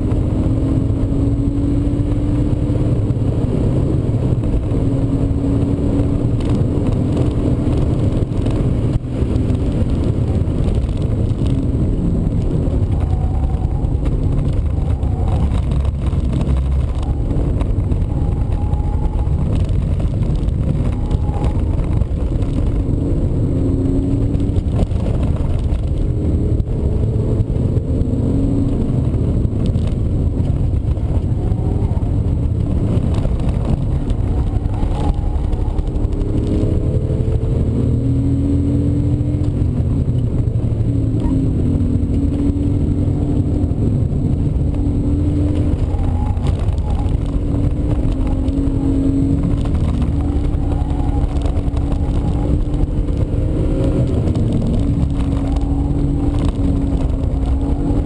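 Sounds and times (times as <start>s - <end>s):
car engine accelerating and shifting: 0.0s - 58.0s
steady low rumble: 0.0s - 58.0s.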